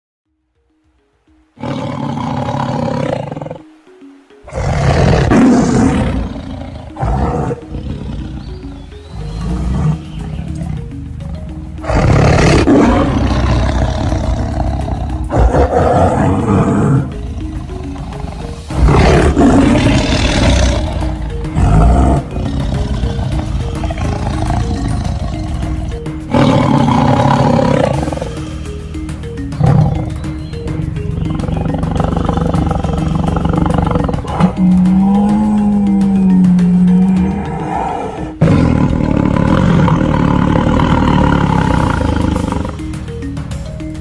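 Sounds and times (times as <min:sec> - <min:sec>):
background tune: 0:00.3 - 0:44.0
tiger roaring: 0:01.6 - 0:03.7, 0:04.4 - 0:28.8, 0:29.6 - 0:43.0.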